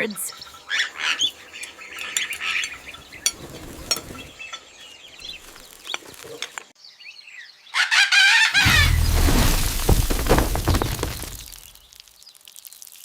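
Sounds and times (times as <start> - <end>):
cutlery and dishes clinking: 1.6 - 4.7.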